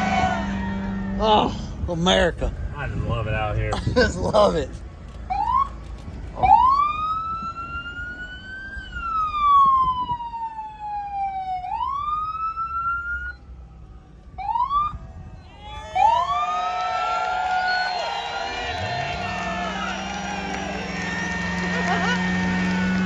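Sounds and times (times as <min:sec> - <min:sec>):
siren wailing: 0:00.0 - 0:01.5, 0:06.4 - 0:23.0
siren chirp: 0:06.4 - 0:17.0.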